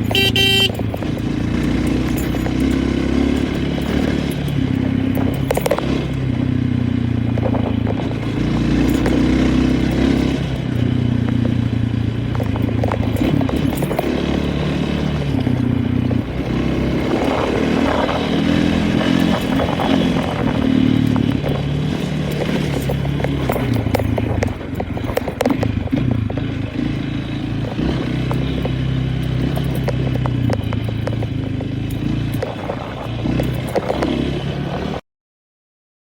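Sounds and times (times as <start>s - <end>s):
vehicle engine revving: 0.0s - 35.0s
knocks and rattles: 17.0s - 34.2s.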